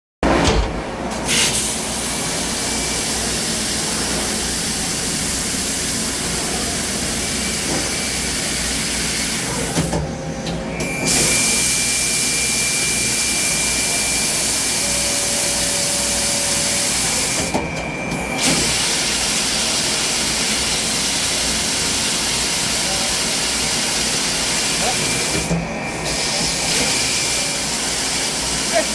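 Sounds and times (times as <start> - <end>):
machine loud hiss: 1.1 - 17.6, 18.2 - 28.9
thin high whine: 10.2 - 19.0.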